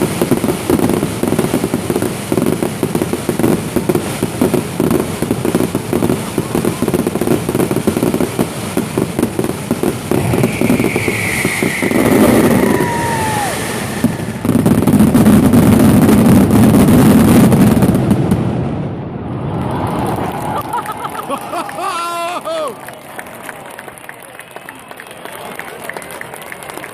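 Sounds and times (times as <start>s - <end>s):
fireworks crackling bursts: 0.0s - 26.9s
falling firework whistle: 9.4s - 16.9s.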